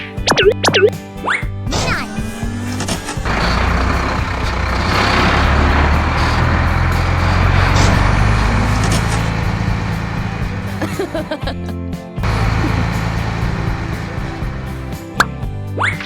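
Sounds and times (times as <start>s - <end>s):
truck engine rumble: 2.0s - 15.6s
rushing noise: 2.6s - 10.9s, 12.2s - 15.2s.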